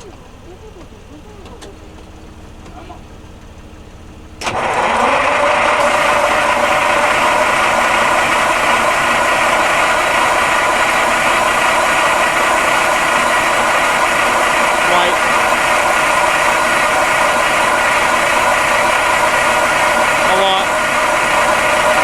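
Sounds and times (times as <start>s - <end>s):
diesel engine running with rattle: 0.0s - 22.0s
diesel truck engine starting: 0.0s - 22.0s.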